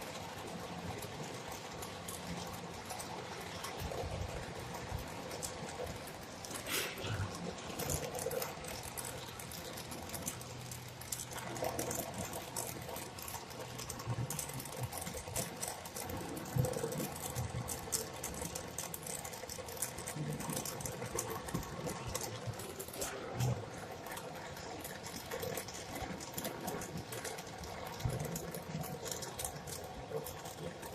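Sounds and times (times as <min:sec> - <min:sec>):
crackling clicks: 0:00.0 - 0:30.9
torch flame hissing: 0:06.4 - 0:07.9.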